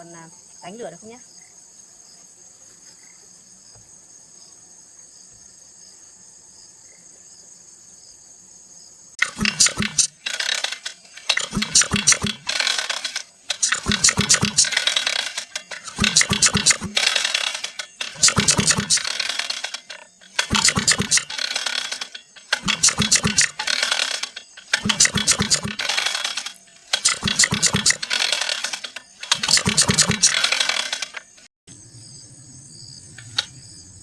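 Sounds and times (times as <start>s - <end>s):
pull starter cranking engine: 9.2s - 31.5s.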